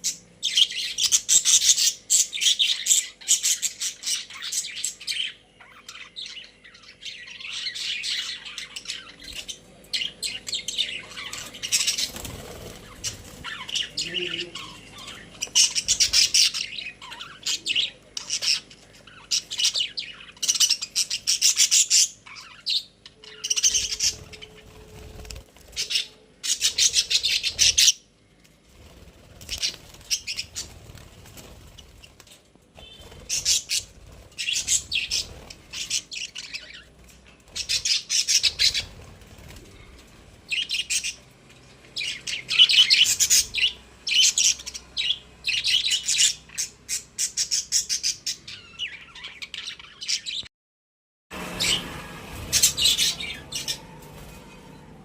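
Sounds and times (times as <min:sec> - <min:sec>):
budgerigars chirping: 0:00.0 - 0:24.8, 0:25.8 - 0:28.0, 0:29.4 - 0:30.8, 0:32.8 - 0:39.0, 0:40.5 - 0:41.2, 0:42.0 - 0:50.5.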